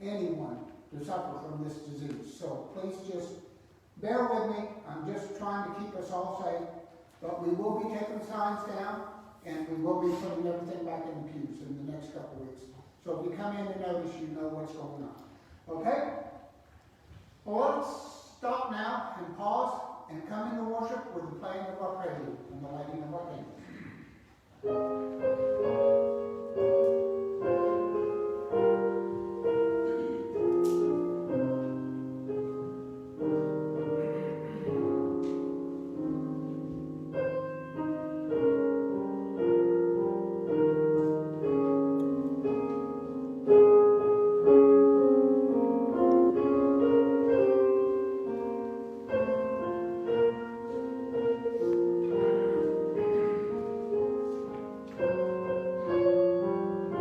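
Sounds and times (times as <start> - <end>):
slow piano prelude: 21.0 - 57.0.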